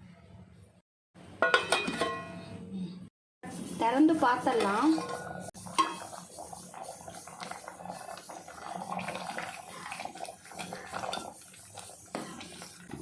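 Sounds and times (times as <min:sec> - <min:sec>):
stew boiling in a pot: 0:03.4 - 0:13.0.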